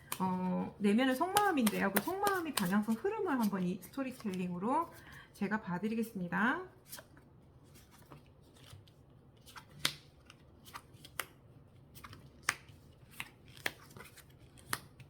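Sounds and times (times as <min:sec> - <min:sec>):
cards clicking and snapping: 0:01.2 - 0:03.5, 0:09.4 - 0:15.0.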